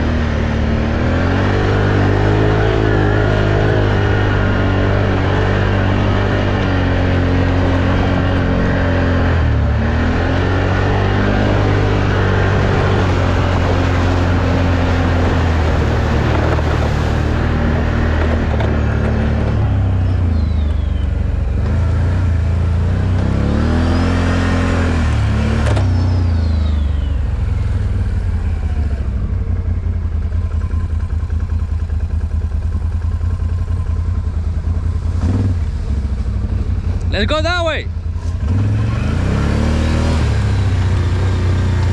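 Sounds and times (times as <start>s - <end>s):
atv engine revving under load: 0.0s - 37.4s, 38.0s - 41.9s.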